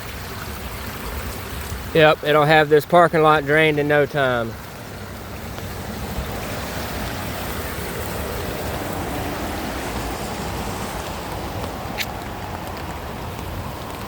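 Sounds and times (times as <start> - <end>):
floodwater rushing down drain: 0.0 - 14.0.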